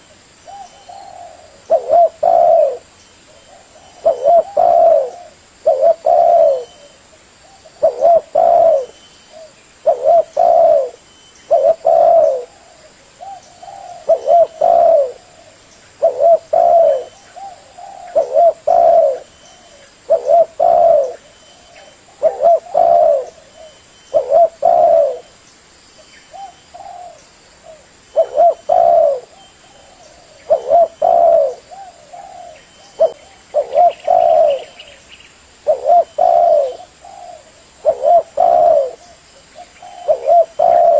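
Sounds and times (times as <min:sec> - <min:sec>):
dove cooing: 0:00.0 - 0:25.3, 0:26.3 - 0:35.0, 0:35.6 - 0:40.9
faint high chirp: 0:06.0 - 0:12.5, 0:16.6 - 0:27.4, 0:32.2 - 0:37.4.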